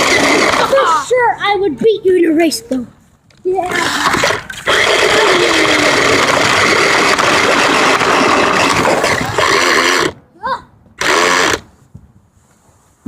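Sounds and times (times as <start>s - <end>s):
toy car wheels rolling: 0.0s - 1.0s, 3.6s - 10.2s, 11.0s - 11.7s
toy car electric motor and gears: 4.2s - 10.2s, 11.0s - 11.7s.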